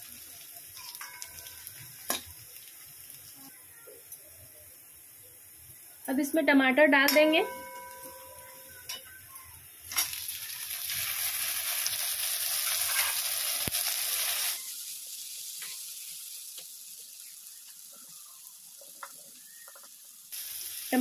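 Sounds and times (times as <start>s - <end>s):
frying sizzle: 0.0s - 21.0s
tomatoes clacking into pan: 0.8s - 2.7s, 9.9s - 10.5s.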